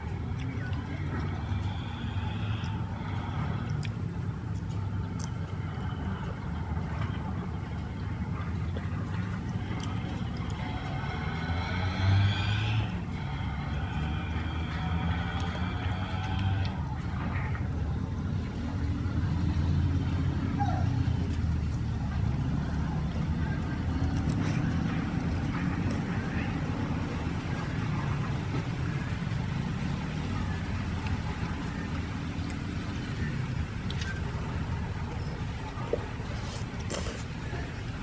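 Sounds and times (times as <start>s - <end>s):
low rumble of vehicle: 0.0s - 38.0s.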